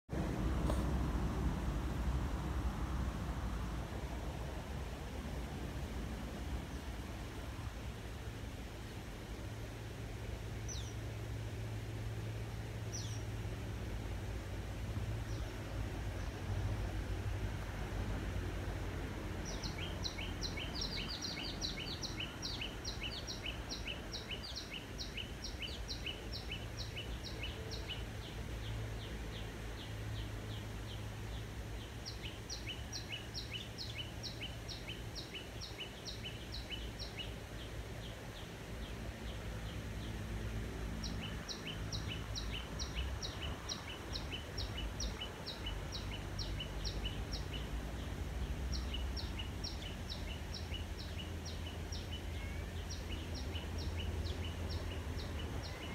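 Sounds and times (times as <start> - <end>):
steady low rumble: 0.1 - 19.6
birds chirping: 19.4 - 55.9.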